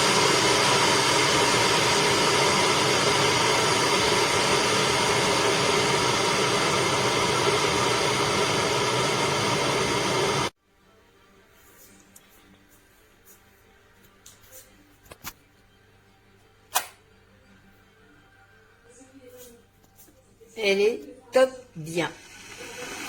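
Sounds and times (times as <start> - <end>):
electric kettle boiling water: 0.0 - 10.6, 21.8 - 23.0.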